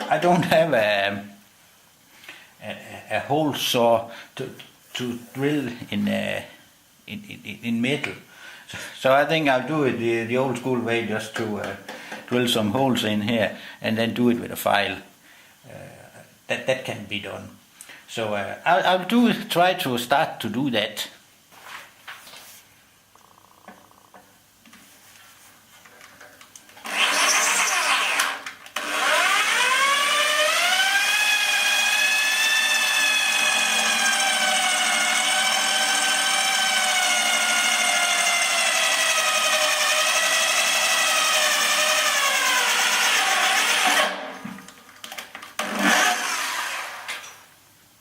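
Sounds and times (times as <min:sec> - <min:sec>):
electric drill boring into metal: 0:26.8 - 0:44.4, 0:45.6 - 0:47.2.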